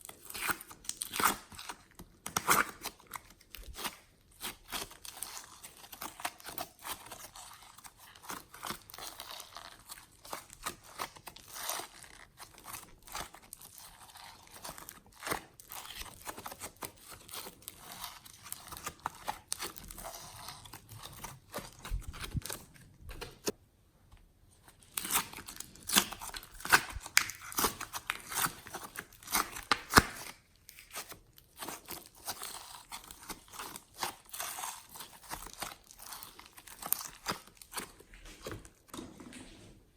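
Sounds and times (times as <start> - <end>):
slime sticky clicks and crackles: 25.0 - 37.9.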